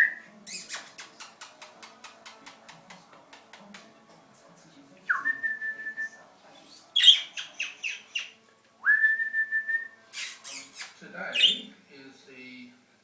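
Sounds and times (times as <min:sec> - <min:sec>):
budgies chirping: 0:06.8 - 0:08.4, 0:10.2 - 0:11.8.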